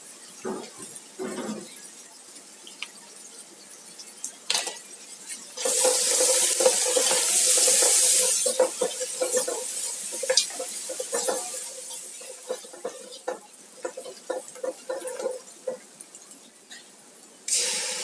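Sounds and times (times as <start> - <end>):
kitchen utensils clinking: 4.5 - 15.8.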